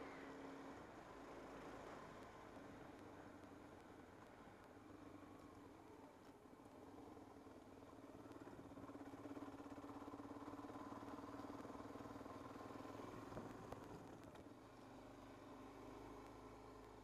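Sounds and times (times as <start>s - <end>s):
motorcycle engine running: 7.0s - 14.5s.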